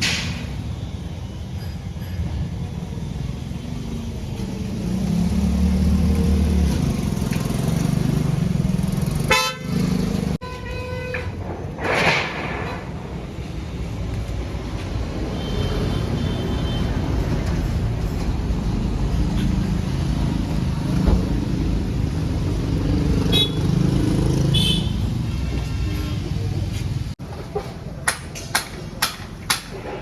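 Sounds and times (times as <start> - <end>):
vehicle horn: 9.2 - 11.4, 24.5 - 26.2.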